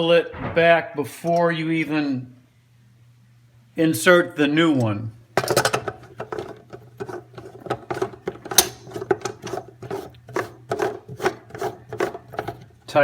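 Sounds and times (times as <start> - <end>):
plastic parts clicking and rattling: 5.4 - 12.9.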